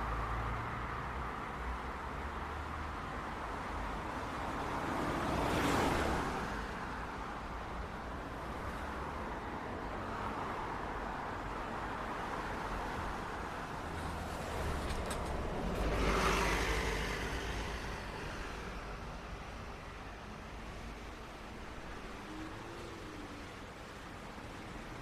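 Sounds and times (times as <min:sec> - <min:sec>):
city street traffic: 0:00.0 - 0:25.0
vehicle passing close by: 0:14.0 - 0:18.7.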